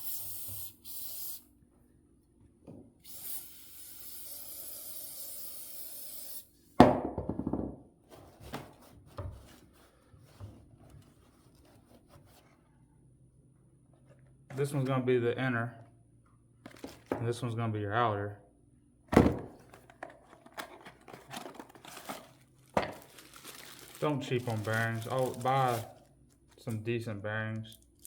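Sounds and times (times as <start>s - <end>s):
aerosol can spraying: 0.0s - 1.4s, 3.0s - 6.5s.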